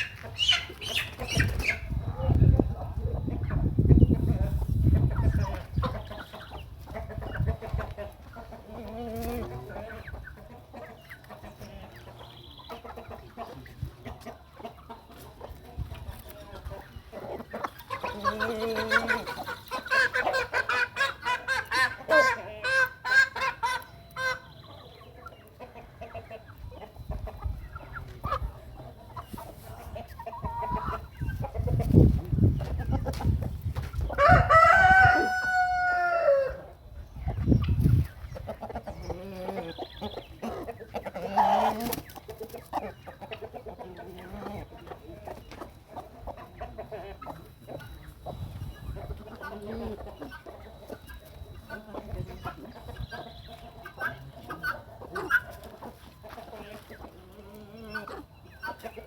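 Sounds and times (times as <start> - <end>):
chickens clucking: 0.0 - 59.0
rooster crowing: 34.2 - 36.7.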